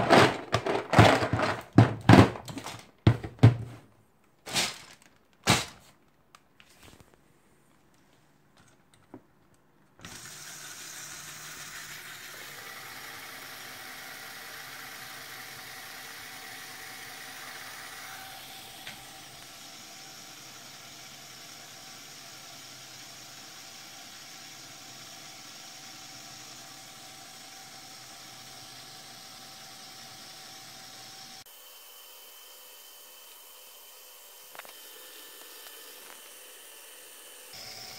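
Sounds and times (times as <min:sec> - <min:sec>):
electric motor whirring: 0:10.0 - 0:37.9.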